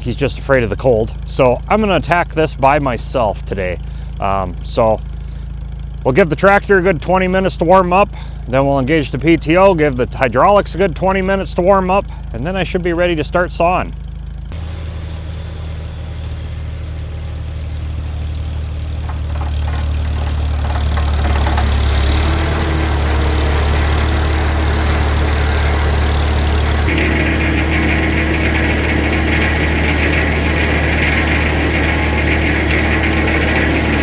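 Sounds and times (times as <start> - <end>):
tractor engine idling: 0.0 - 14.8, 17.2 - 34.0.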